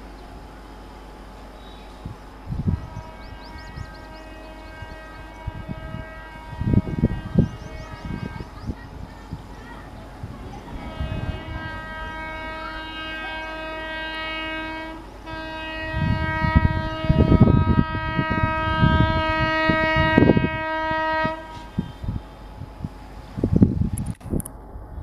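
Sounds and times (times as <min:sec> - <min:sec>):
train rumbling past: 0:00.0 - 0:25.0
locomotive horn blasts: 0:01.6 - 0:09.0, 0:10.0 - 0:22.2.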